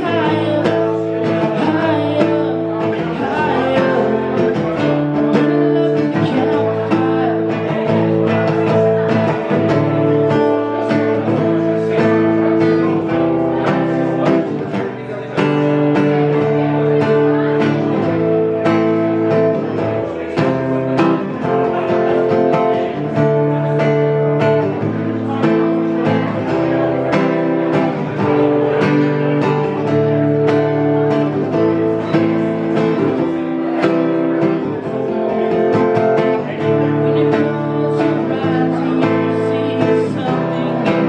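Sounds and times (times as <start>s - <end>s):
acoustic guitar strumming: 0.0s - 41.0s.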